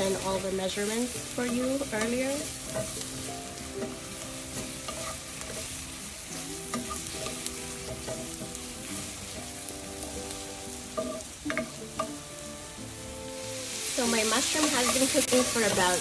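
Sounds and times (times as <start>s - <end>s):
mushrooms sizzling in a pan: 0.0s - 16.0s
utensil clacking against pan: 1.3s - 3.1s, 3.8s - 5.8s, 6.7s - 9.5s, 10.9s - 12.2s, 14.4s - 16.0s.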